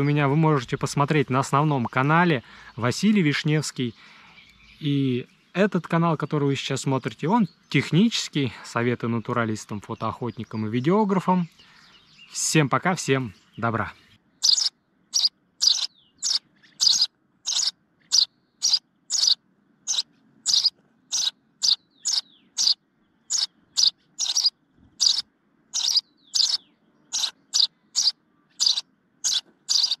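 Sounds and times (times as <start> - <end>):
bird calling repeatedly: 13.2 - 30.0.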